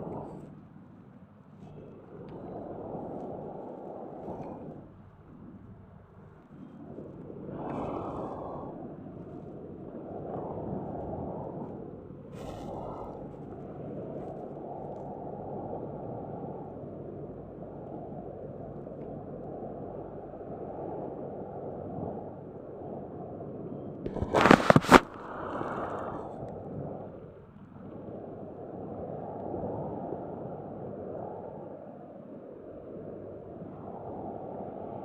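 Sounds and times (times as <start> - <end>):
wind on microphone: 0.0 - 35.0
sharp crackles: 24.1 - 26.5
sea surf washing: 24.1 - 27.5.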